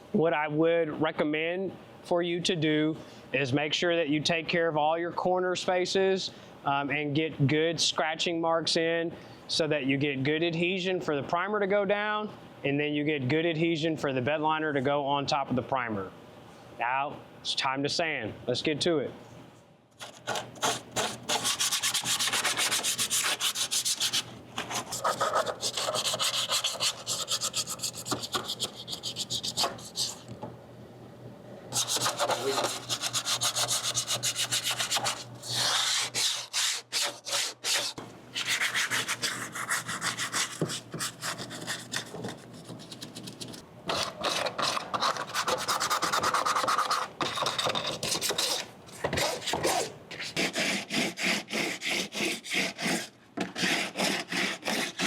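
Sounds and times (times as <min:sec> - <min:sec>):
sandpaper rubbing on metal floor: 0:20.0 - 0:30.2, 0:31.7 - 0:55.0.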